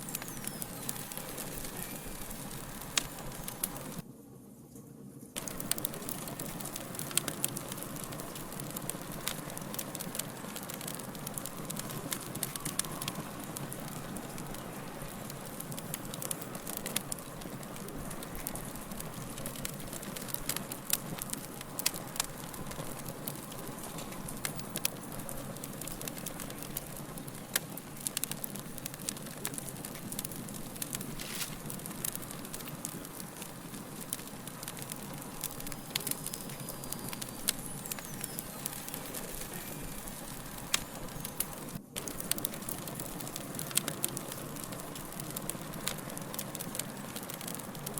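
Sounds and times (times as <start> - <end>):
wood fire crackling: 0.0 - 4.1, 5.3 - 47.9.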